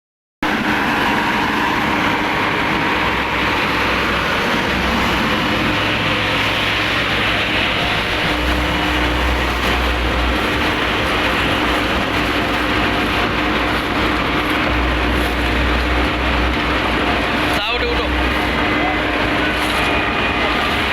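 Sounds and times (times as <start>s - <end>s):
road milling machine running: 0.4s - 20.9s.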